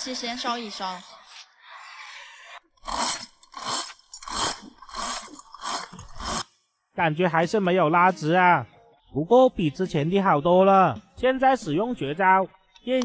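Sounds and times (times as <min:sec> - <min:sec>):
chain hoist rasping strokes: 0:02.8 - 0:06.5.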